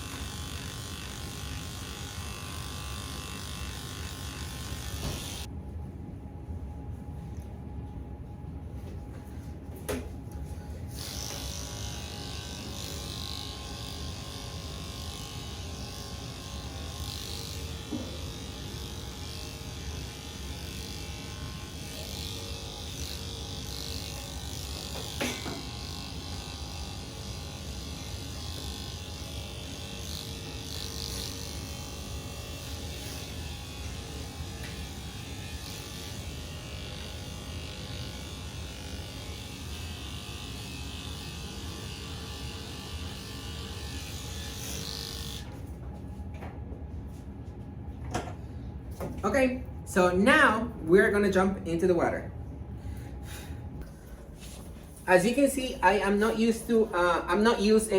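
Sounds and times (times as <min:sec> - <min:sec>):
electric clippers running: 0:00.0 - 0:05.5, 0:10.8 - 0:45.8, 0:55.1 - 0:57.9.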